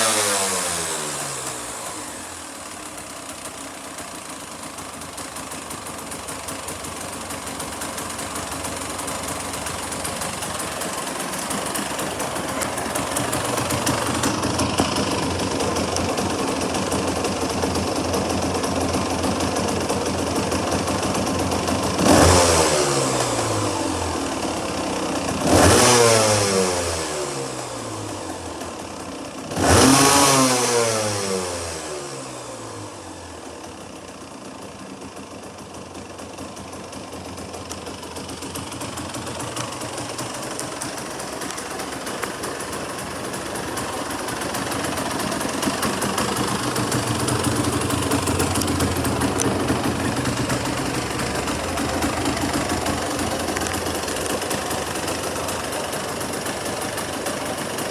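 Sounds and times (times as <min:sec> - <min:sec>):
motorcycle engine idling and revving: 0:00.0 - 0:57.9.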